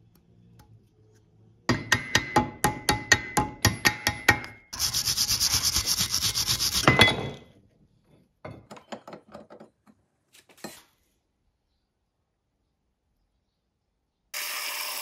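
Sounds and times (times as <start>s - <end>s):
abrasive rubbing on knife blade: 4.8s - 6.9s.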